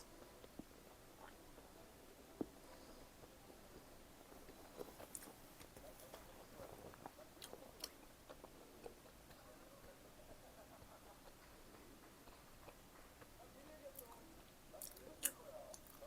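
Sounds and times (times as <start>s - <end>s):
chewing food: 4.4s - 9.6s, 10.7s - 16.0s.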